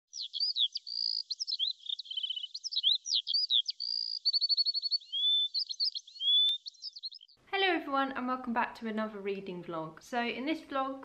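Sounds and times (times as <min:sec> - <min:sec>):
songbird singing: 0:00.1 - 0:07.5.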